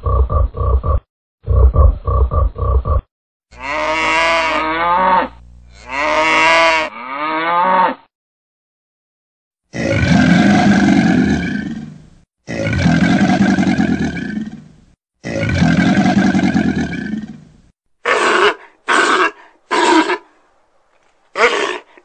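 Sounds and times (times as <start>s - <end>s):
sea lion barks: 18.0s - 20.2s, 21.4s - 22.0s.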